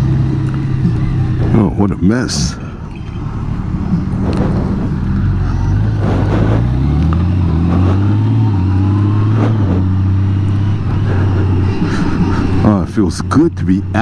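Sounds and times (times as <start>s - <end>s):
motorcycle engine pulling: 0.0s - 14.0s.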